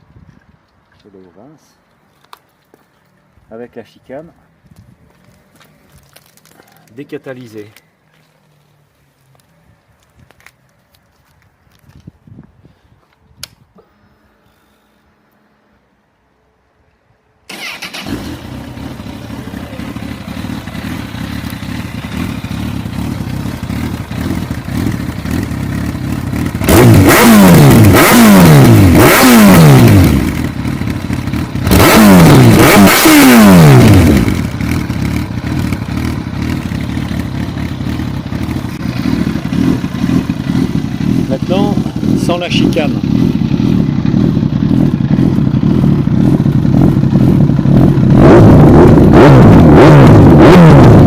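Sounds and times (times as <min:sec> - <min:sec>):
motorcycle engine revving: 0:17.5 - 0:51.0.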